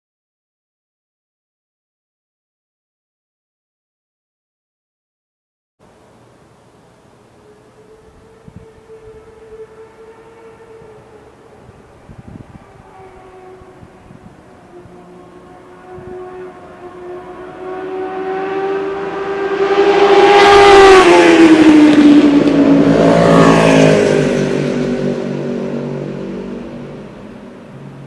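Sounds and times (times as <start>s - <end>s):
second lower engine note: 7.0s - 28.0s
motorcycle passing by: 7.4s - 28.0s.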